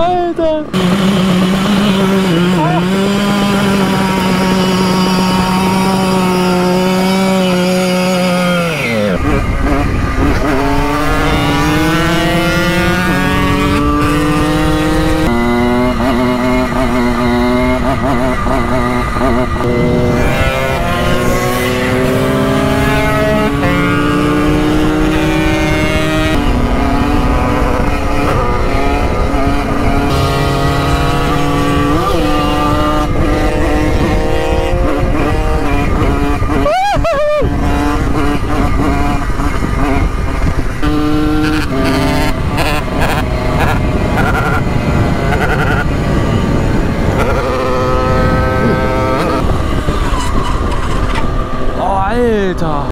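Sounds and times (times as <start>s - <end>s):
wind rumbling on microphone: 0.0s - 52.9s
moped engine revving: 0.5s - 52.2s.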